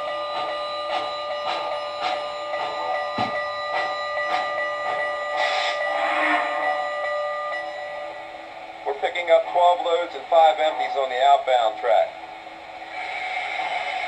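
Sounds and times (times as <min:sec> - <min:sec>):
steady whine: 0:00.0 - 0:14.0
steam hiss: 0:05.3 - 0:06.4, 0:12.4 - 0:14.0
model steam locomotive chuffing: 0:12.8 - 0:14.0.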